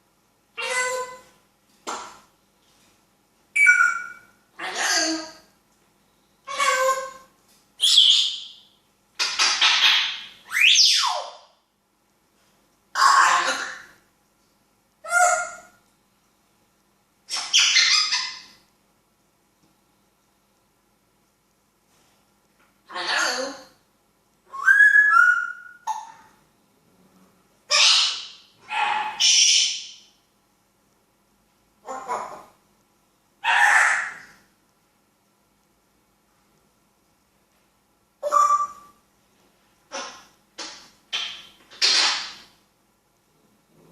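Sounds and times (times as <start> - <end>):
parrot calling: 0.5 - 1.4, 3.5 - 5.5, 6.4 - 8.6, 9.2 - 11.5, 12.9 - 14.0, 15.0 - 15.8, 17.3 - 18.6, 22.8 - 23.8, 24.5 - 26.4, 27.7 - 30.1, 31.8 - 32.6, 33.4 - 34.4, 38.2 - 39.0, 39.9 - 42.5
parrot whistling: 3.6 - 4.3, 24.5 - 26.1, 38.2 - 38.9.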